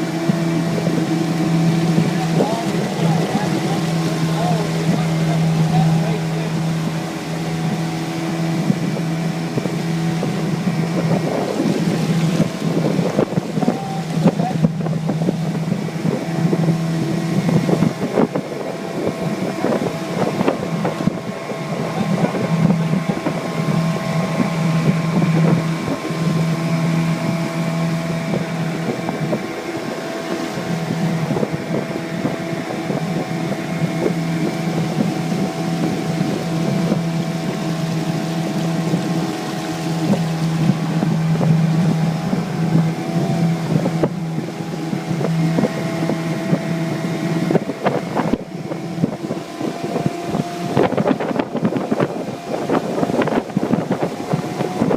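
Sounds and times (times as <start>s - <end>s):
outboard motor running: 0.0s - 54.9s
wind on microphone: 0.0s - 54.9s.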